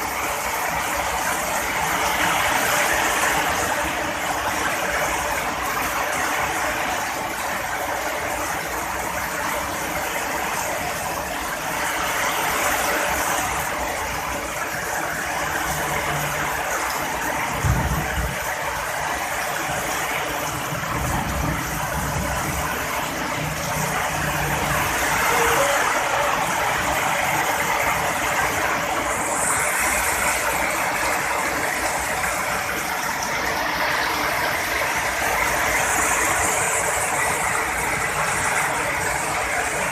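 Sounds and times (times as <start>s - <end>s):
heavy rain: 0.0s - 39.9s
rumble of thunder: 17.5s - 19.4s, 20.4s - 25.1s.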